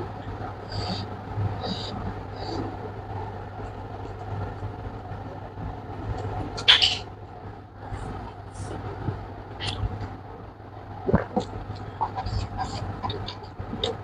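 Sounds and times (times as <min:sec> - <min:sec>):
steady low hum: 0:00.0 - 0:14.0
mouth smacking: 0:09.6 - 0:09.9, 0:11.1 - 0:14.0.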